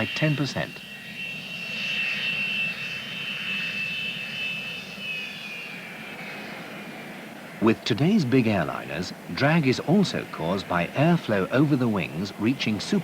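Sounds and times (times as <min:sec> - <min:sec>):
jet engines whining: 0:00.0 - 0:13.0.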